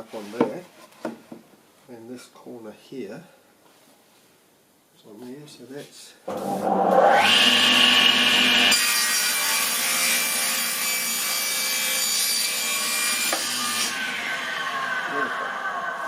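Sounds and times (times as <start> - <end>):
table saw whine: 6.3 - 10.9, 12.4 - 16.0
saw cutting through timber: 6.3 - 16.0.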